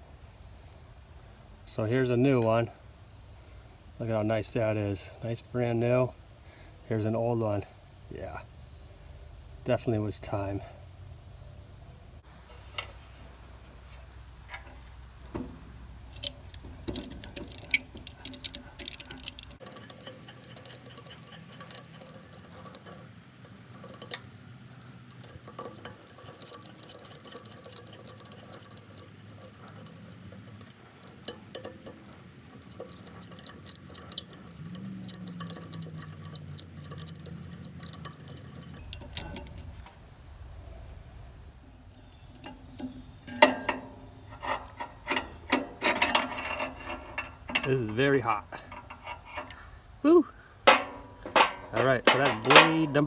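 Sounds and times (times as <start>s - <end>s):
metallic clinks of tools: 16.2s - 39.5s, 50.7s - 53.0s
ratchet wrench clicking: 16.2s - 39.5s.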